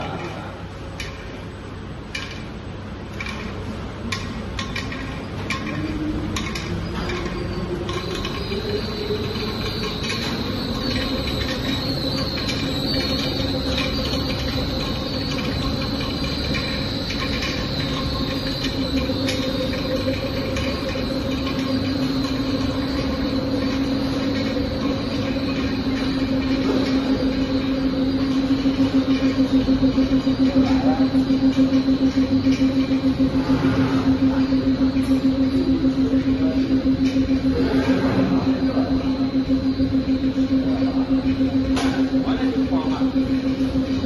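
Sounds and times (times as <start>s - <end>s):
high-pitched whine: 0.0s - 44.0s
wire bunching machine whine: 0.0s - 44.0s
machine clicks: 3.1s - 33.4s.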